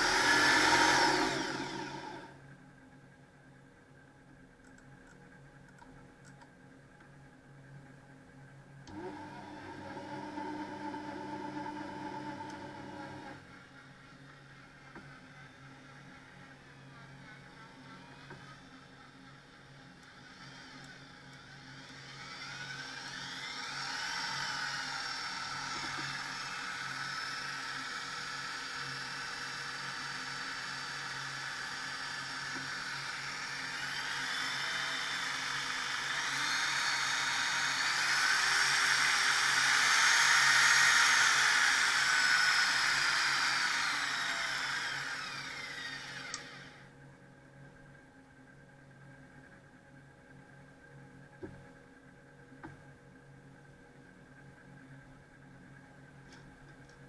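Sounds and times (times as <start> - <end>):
jigsaw motor whine: 0.0 - 2.4, 8.9 - 13.4, 20.2 - 46.9.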